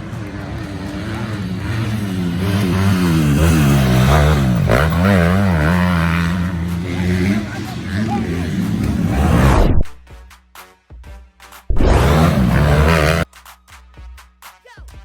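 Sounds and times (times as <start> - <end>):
dirt bike engines revving: 0.0 - 10.0, 11.7 - 13.3.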